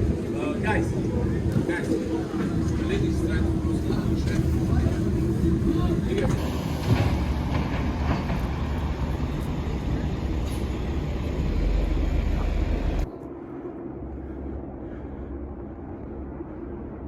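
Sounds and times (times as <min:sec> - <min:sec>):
faint voices: 0:00.0 - 0:06.9
low engine rumble: 0:00.0 - 0:17.0.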